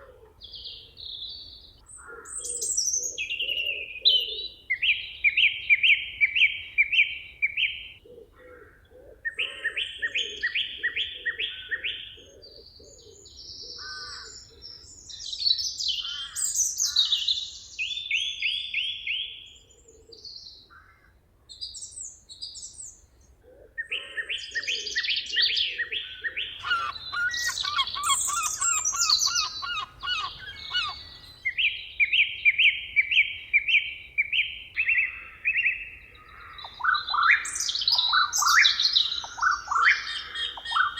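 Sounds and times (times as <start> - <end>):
birds chirping: 23.8 - 40.9
low bird call: 23.8 - 40.9
high sweeping bird notes: 26.6 - 31.6.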